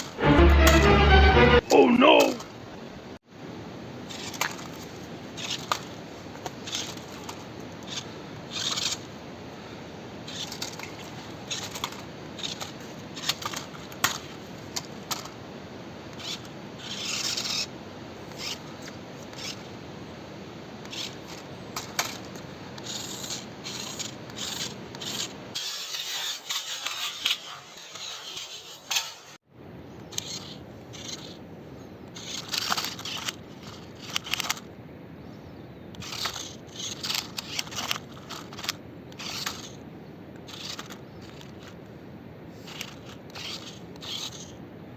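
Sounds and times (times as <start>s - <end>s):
tyres scraping on dirt and rocks: 4.1s - 9.2s, 10.2s - 15.4s, 16.1s - 19.7s, 20.8s - 29.4s, 32.2s - 34.6s, 36.0s - 39.8s, 40.4s - 41.8s, 42.5s - 44.6s
toy truck motor hum: 5.4s - 5.9s, 6.6s - 9.0s, 10.3s - 14.3s, 16.1s - 19.7s, 20.8s - 29.2s, 30.0s - 31.4s, 32.2s - 34.6s, 36.0s - 39.8s, 40.4s - 41.8s, 42.6s - 44.6s.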